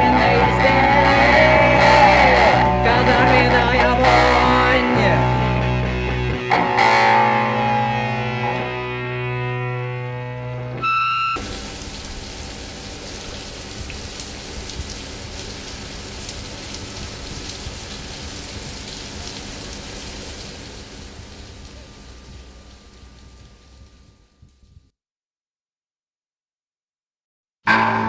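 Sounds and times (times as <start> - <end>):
rain falling: 0.0 - 9.2, 10.8 - 24.4
rock song chord ringing: 0.0 - 11.8, 27.7 - 28.0.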